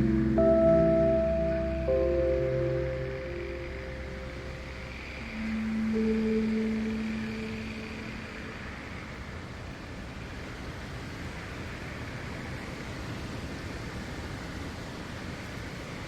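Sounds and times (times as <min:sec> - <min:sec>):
soft ambient music: 0:00.0 - 0:09.7
wind rushing through forest: 0:00.0 - 0:16.0.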